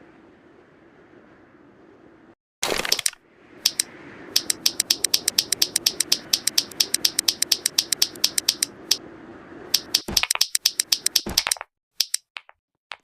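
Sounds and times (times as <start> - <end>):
clicky keyboard typing: 2.7 - 9.0, 9.8 - 13.0.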